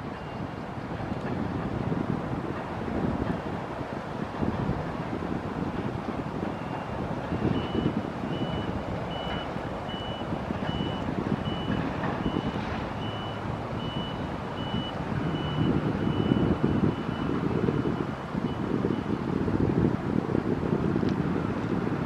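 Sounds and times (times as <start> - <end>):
wind noise: 0.0 - 22.0
electronic alarm beeping: 7.4 - 17.3.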